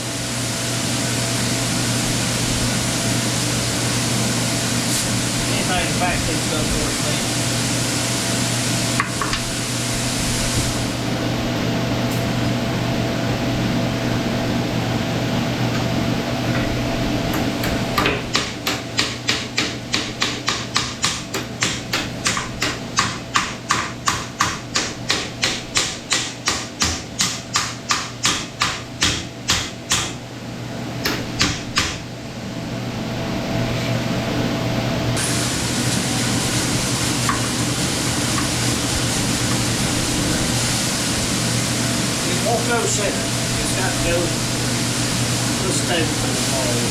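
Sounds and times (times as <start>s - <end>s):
steady machine hum: 0.0s - 46.9s
rapid hammer blows: 17.3s - 30.2s.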